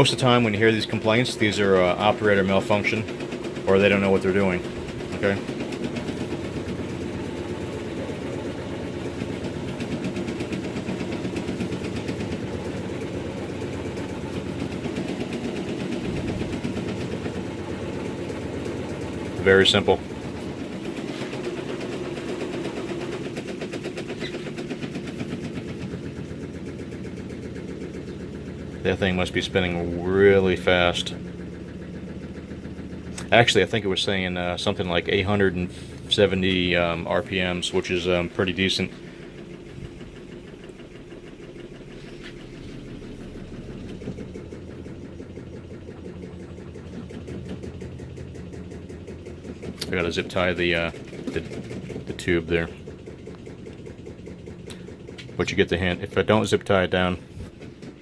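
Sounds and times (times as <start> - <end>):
washing machine spinning hum: 0.0 - 58.0.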